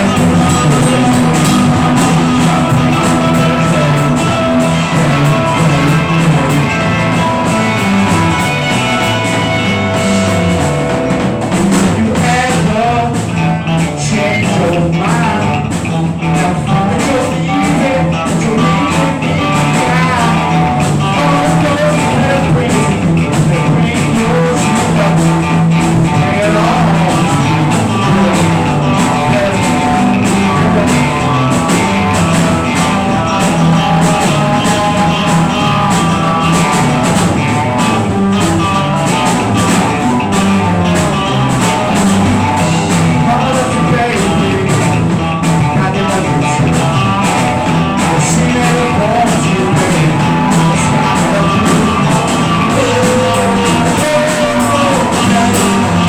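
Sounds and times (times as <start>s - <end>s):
drum kit: 0.0s - 56.0s
electric guitar: 0.0s - 56.0s
walking bass line: 0.0s - 56.0s.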